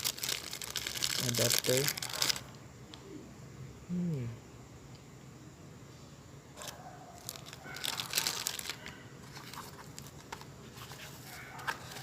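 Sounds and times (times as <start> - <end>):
packaging crinkling and rustling: 0.0 - 2.6, 6.6 - 12.0.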